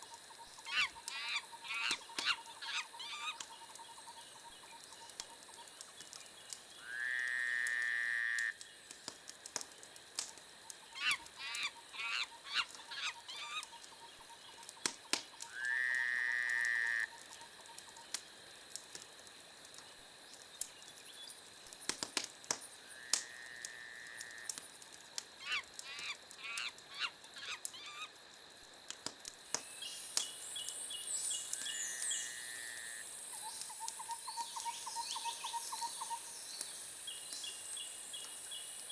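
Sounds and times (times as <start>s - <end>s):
wood fire crackling: 0.0s - 6.9s, 7.6s - 35.0s
steady-pitched animal call: 0.6s - 3.4s, 25.4s - 28.1s
sharp pops of fire: 3.4s - 6.8s, 7.6s - 11.8s, 13.6s - 15.6s, 16.5s - 32.1s.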